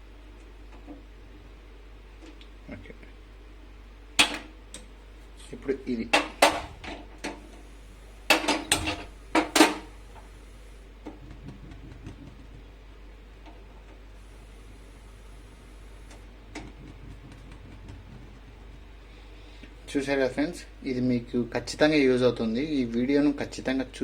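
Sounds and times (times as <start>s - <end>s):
gas stove clicks and knocks: 4.2s - 4.9s, 6.1s - 7.5s, 8.3s - 10.3s, 11.0s - 12.7s
faint gas hiss: 4.8s - 11.2s, 12.7s - 23.0s.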